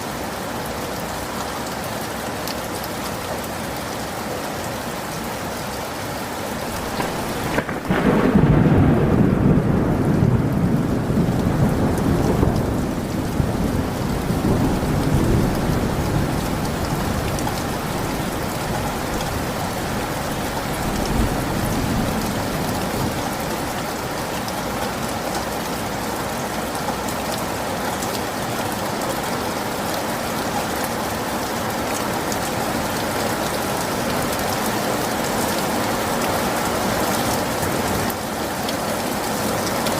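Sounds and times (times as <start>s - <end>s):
heavy rain falling: 0.0s - 39.9s
thunder rumbling: 6.7s - 24.4s.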